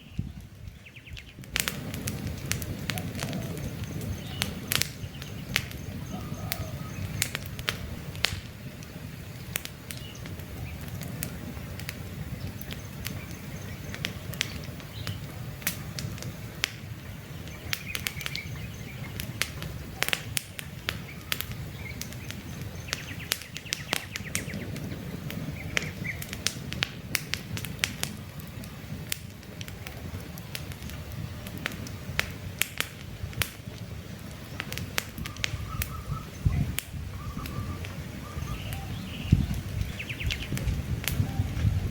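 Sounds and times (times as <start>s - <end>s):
campfire crackling and popping: 0.0s - 41.9s
faint bird chirps: 2.9s - 7.4s, 35.2s - 40.6s.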